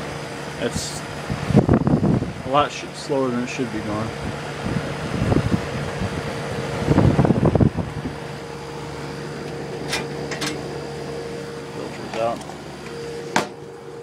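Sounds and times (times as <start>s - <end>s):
dehumidifier humming: 0.0s - 14.0s
rattling handling noise: 9.4s - 10.7s.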